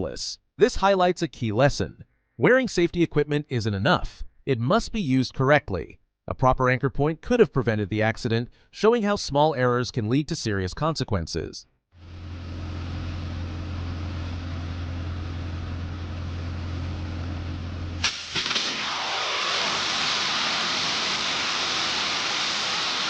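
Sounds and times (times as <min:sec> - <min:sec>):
low mechanical hum: 0:12.0 - 0:18.3
sharp bang: 0:18.0 - 0:22.9
loud rushing hiss: 0:18.0 - 0:23.0.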